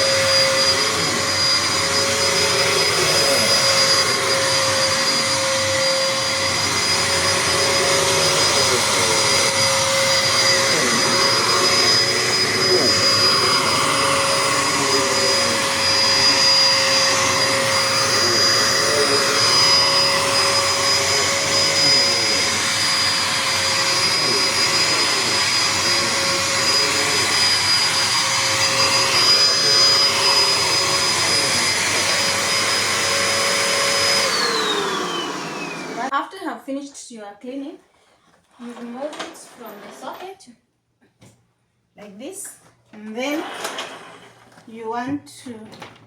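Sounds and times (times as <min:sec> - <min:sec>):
motor spinning down: 0:00.0 - 0:36.1
vacuum cleaner whine: 0:00.0 - 0:36.2, 0:38.6 - 0:40.2, 0:43.1 - 0:44.7.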